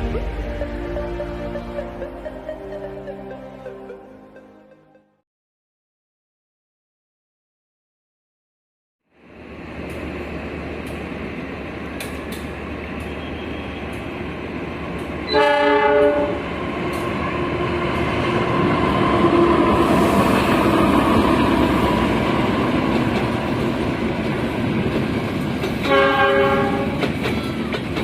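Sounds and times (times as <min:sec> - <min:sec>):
train rumbling on rails: 0:00.0 - 0:04.1, 0:09.1 - 0:28.0
train horn blast: 0:13.0 - 0:14.0, 0:15.3 - 0:16.4, 0:25.8 - 0:27.1.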